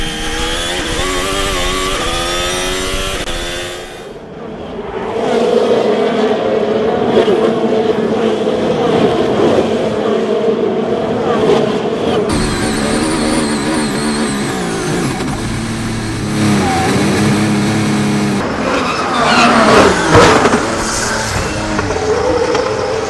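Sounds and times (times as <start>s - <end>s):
racing car engine accelerating: 0.0s - 4.1s, 12.2s - 23.0s.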